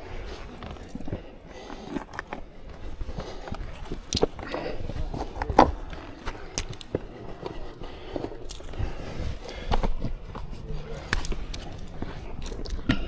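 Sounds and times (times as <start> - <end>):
footsteps scrambling on rock: 0.0 - 13.0.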